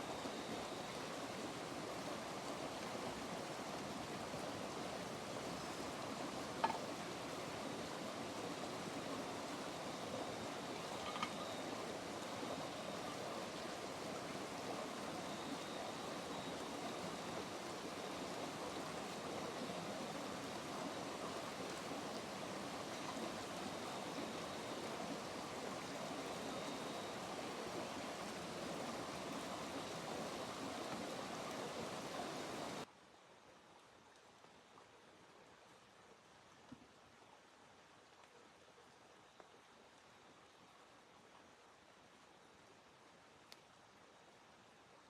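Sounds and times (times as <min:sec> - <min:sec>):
flowing water rushing: 0:00.0 - 0:39.1.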